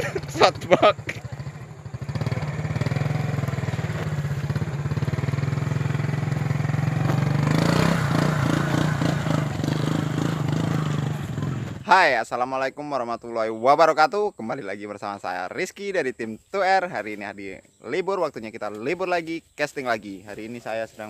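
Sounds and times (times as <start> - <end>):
small motorcycle engine running: 0.0 - 11.8.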